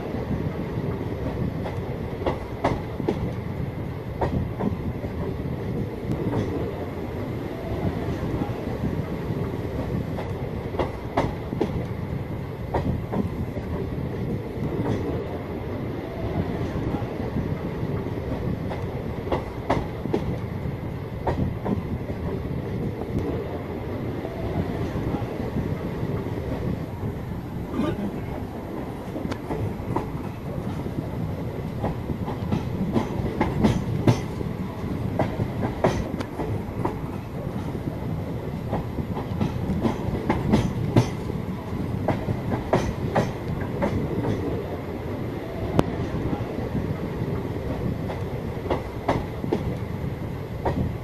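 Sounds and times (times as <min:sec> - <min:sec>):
train coach rumbling: 0:00.0 - 0:51.0
wheels clacking over rail joints: 0:31.7 - 0:37.8, 0:38.6 - 0:44.6.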